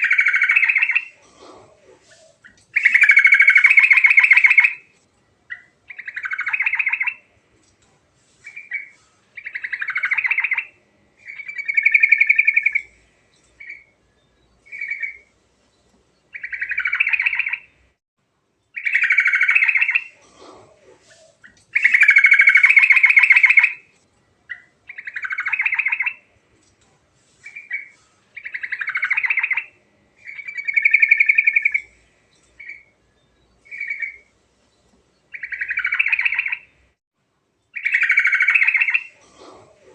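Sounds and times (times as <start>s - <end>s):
bulbul singing: 0.0s - 4.9s, 5.5s - 7.3s, 8.4s - 15.3s, 16.3s - 17.8s, 21.1s - 23.9s, 24.5s - 26.3s, 27.4s - 36.8s, 37.7s - 39.2s.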